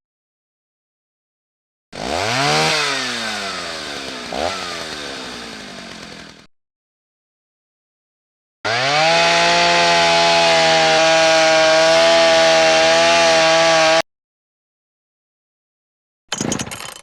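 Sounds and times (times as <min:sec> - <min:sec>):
power tool motor running: 0:02.0 - 0:06.5, 0:08.7 - 0:14.0.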